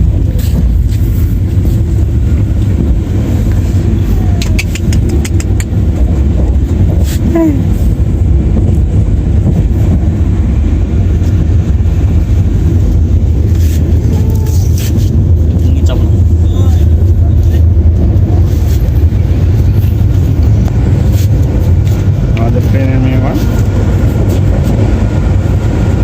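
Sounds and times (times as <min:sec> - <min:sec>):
train rumbling on rails: 0:00.0 - 0:26.0
sharp clicks: 0:04.4 - 0:05.8.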